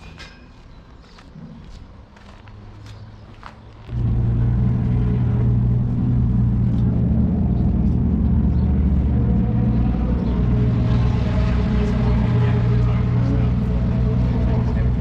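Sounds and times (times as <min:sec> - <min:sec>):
car engine running loud: 0:03.9 - 0:15.0.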